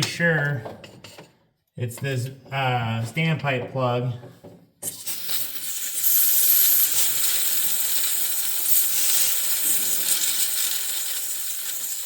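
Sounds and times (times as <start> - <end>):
compressed air hissing: 4.8 - 12.0.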